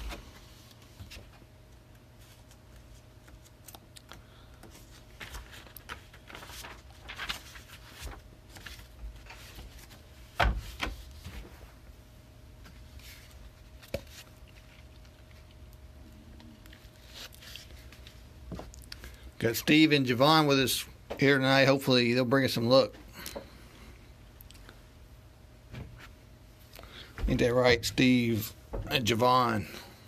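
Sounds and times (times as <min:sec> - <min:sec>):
rustling of things handled: 0:00.0 - 0:11.8, 0:16.5 - 0:19.0
steady low hum: 0:00.0 - 0:30.0.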